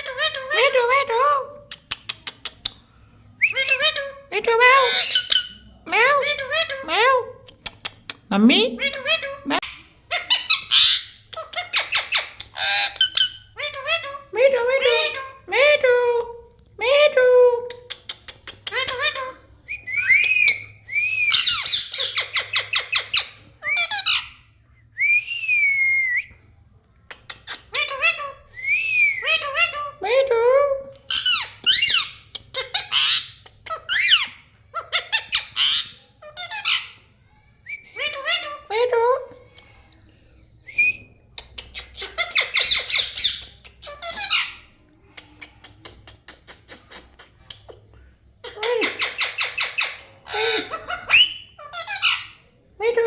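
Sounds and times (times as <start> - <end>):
parrot whistling and squawking: 3.4 - 7.2, 8.7 - 15.8, 18.7 - 24.6, 27.5 - 30.1, 31.0 - 37.1, 37.8 - 39.0, 41.7 - 44.7, 48.4 - 53.0
quick sharp clicks: 7.4 - 8.2.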